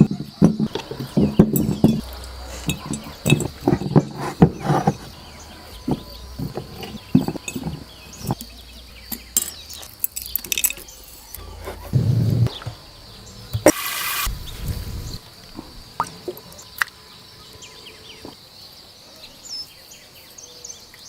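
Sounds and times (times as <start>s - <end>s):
glass jar and utensils clinking: 0.0s - 11.4s.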